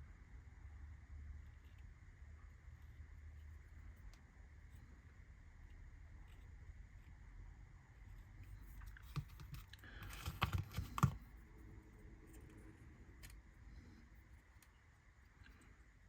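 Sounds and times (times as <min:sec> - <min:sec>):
parts scraping and clicking: 0:08.1 - 0:11.3.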